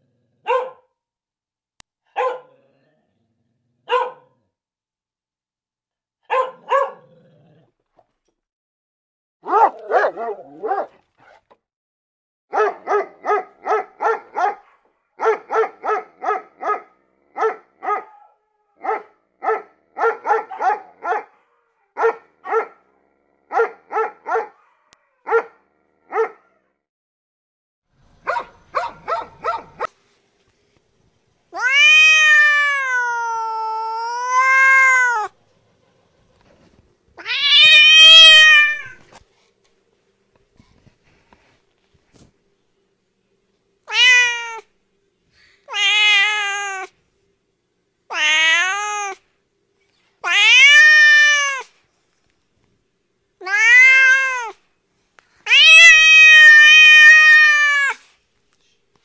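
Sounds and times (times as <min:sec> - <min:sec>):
dog barking: 0:00.4 - 0:01.0, 0:02.1 - 0:02.6, 0:03.8 - 0:04.4, 0:06.2 - 0:07.2, 0:09.4 - 0:11.6, 0:12.5 - 0:26.7, 0:28.2 - 0:30.0
cat meowing: 0:31.5 - 0:35.4, 0:37.2 - 0:39.1, 0:43.9 - 0:44.7, 0:45.7 - 0:46.9, 0:48.1 - 0:49.2, 0:50.2 - 0:51.7, 0:53.4 - 0:54.6, 0:55.5 - 0:58.1.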